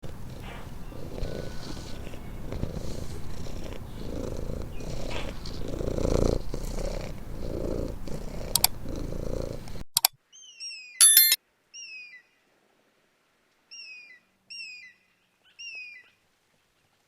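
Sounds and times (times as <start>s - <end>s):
cat purring: 0.0s - 9.9s.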